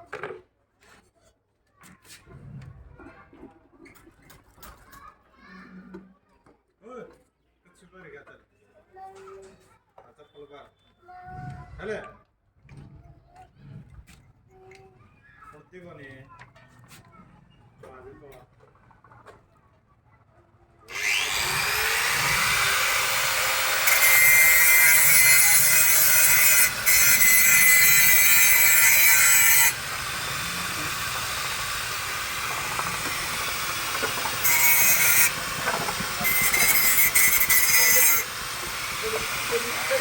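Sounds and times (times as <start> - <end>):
power tool cutting wood: 20.9 - 40.0.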